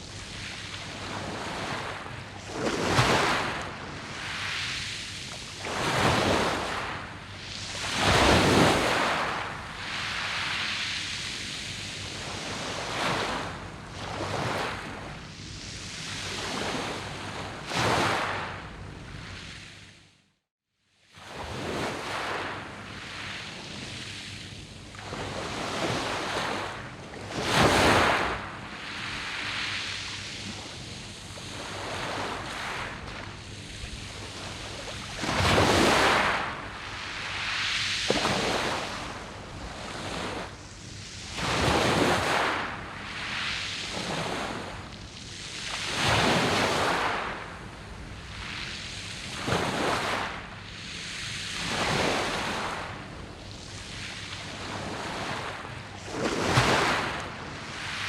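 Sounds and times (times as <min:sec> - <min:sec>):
waves washing over pebbles: 0:00.1 - 0:15.0, 0:21.2 - 0:58.0.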